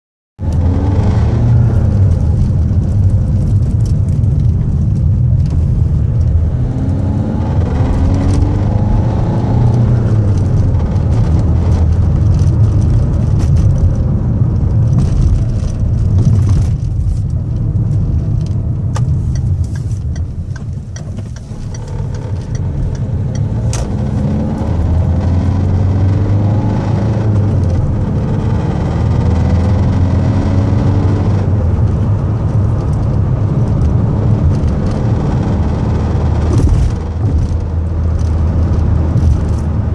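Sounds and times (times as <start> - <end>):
road and engine rumble: 0.4 - 39.9.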